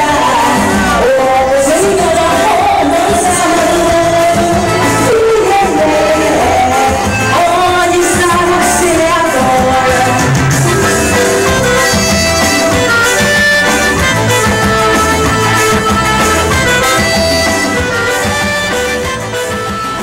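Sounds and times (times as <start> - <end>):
reed-toned lead melody: 0.0 - 20.0.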